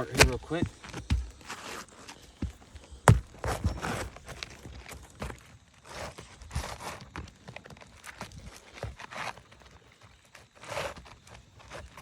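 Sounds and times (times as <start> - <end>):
roof shingles knocking: 0.0 - 4.6
scuffs and rustling of shingles: 0.0 - 12.0.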